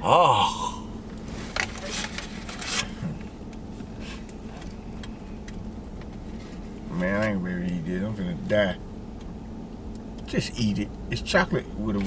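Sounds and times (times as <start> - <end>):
steady low hum: 0.0 - 1.6.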